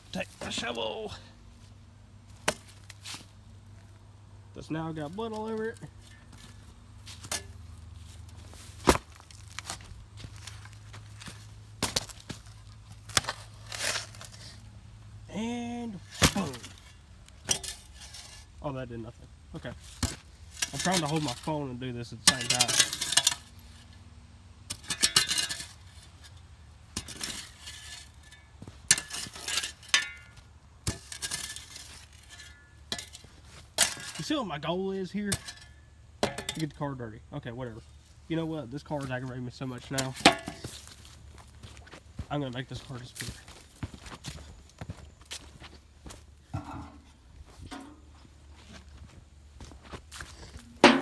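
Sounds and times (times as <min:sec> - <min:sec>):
shovel scraping gravelly dirt: 0:00.1 - 0:01.3, 0:02.4 - 0:03.5, 0:04.6 - 0:14.7, 0:15.3 - 0:24.0, 0:24.7 - 0:51.0
shovel striking hard: 0:50.7 - 0:51.0.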